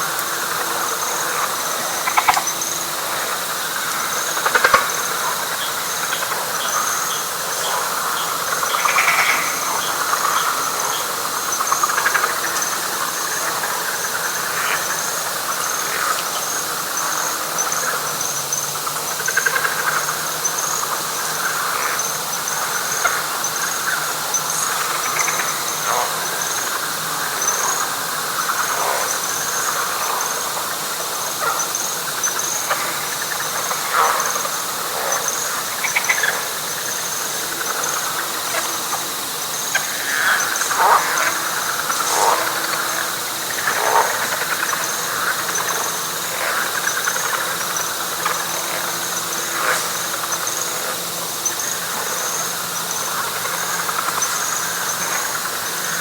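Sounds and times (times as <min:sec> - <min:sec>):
frog chorus: 0:00.0 - 0:56.0
pulsing insect trill: 0:00.0 - 0:56.0.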